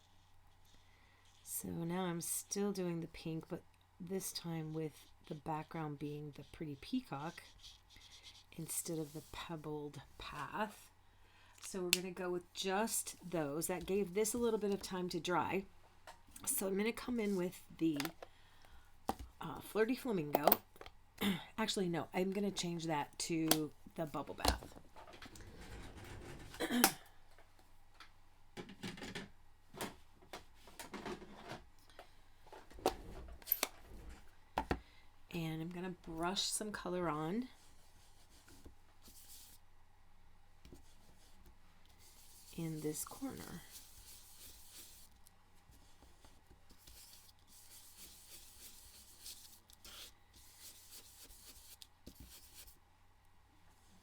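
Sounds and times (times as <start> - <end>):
brush strokes on card: 4.6 - 9.7, 40.8 - 52.8.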